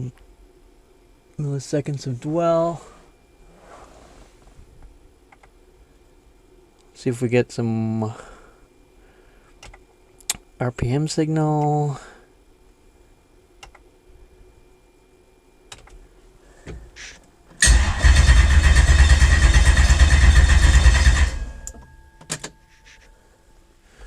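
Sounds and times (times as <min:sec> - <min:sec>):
engine cranking on starter: 0:17.6 - 0:21.7.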